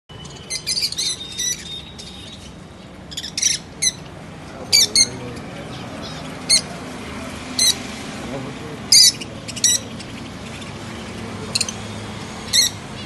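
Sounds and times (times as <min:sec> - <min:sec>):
lovebirds chirping and squawking: 0:00.1 - 0:08.0, 0:08.8 - 0:13.0.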